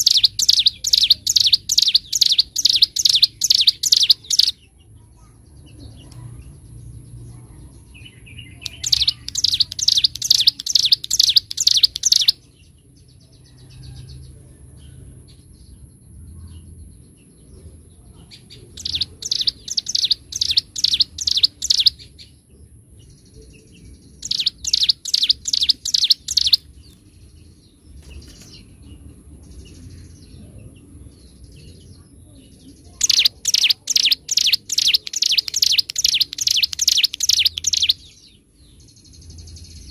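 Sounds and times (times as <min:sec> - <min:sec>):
bird fast high chirping: 0:00.0 - 0:04.6, 0:08.5 - 0:12.4, 0:18.5 - 0:22.2, 0:23.9 - 0:26.9, 0:32.9 - 0:38.3
soft scattered bird chirps: 0:00.0 - 0:39.9.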